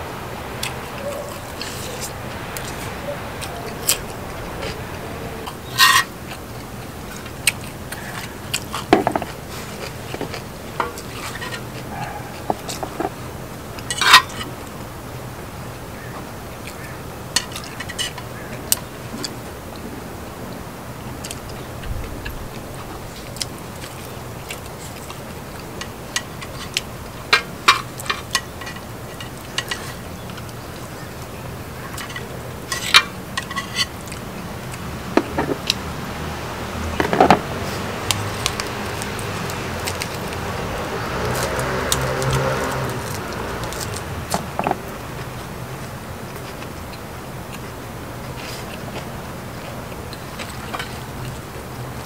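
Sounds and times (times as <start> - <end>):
steady low hum: 0.0 - 41.5
utensils clinking against dishes: 5.4 - 6.4, 13.8 - 14.6, 17.4 - 19.4, 25.8 - 30.5, 31.9 - 34.2.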